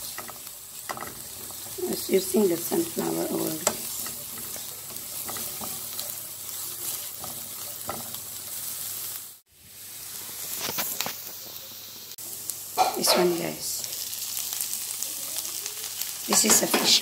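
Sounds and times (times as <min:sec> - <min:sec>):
utensil clicks and scrapes in pan: 0:00.0 - 0:08.7
onion and garlic sizzling in oil: 0:00.0 - 0:17.0.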